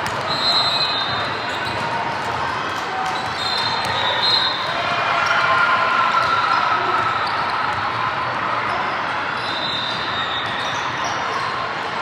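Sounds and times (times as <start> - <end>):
basketball bouncing on court: 0.0 - 0.4.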